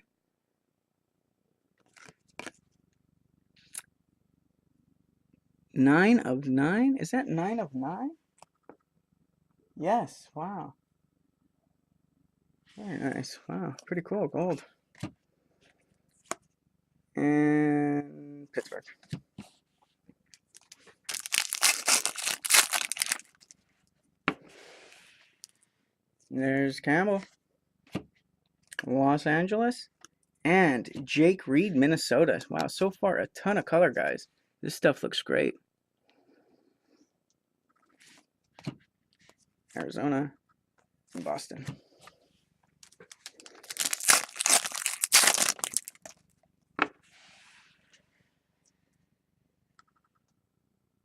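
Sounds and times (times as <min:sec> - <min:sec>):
soft wrapper rustling: 0:20.3 - 0:23.9, 0:42.8 - 0:46.4
wrapper snap: 0:20.4 - 0:23.4, 0:42.8 - 0:46.2
card pack wrapper crinkling: 0:20.4 - 0:23.6, 0:42.8 - 0:46.2.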